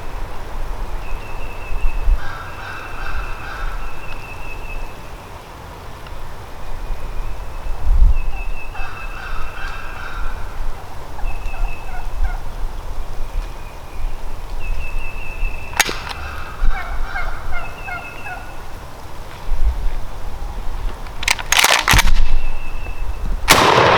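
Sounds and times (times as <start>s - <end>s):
turkey gobbling: 8.8s - 12.6s, 15.8s - 18.8s
sharp crack: 15.7s - 16.6s, 21.1s - 22.4s, 23.5s - 23.9s.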